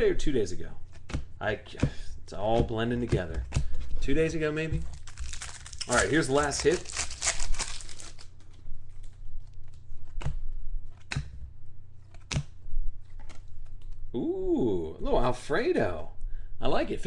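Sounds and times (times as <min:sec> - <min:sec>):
low steady hum: 0:00.0 - 0:17.0
packaging crinkling: 0:03.6 - 0:10.2.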